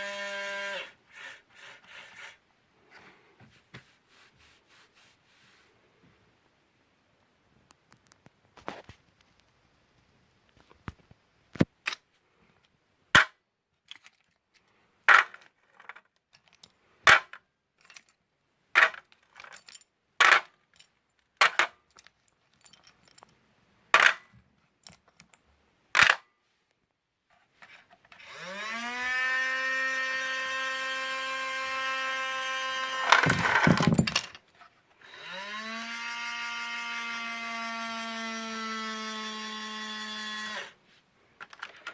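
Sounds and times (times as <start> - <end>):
toy electric motor whining: 0.0 - 2.4, 28.2 - 34.2, 35.0 - 40.8
loud clatter: 33.1 - 34.3.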